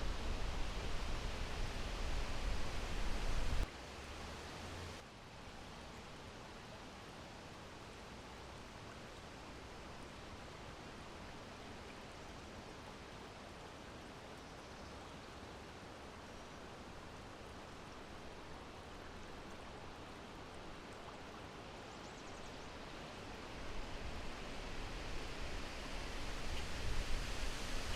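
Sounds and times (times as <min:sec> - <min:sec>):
steady wind blowing: 0:00.0 - 0:03.7, 0:22.8 - 0:27.9.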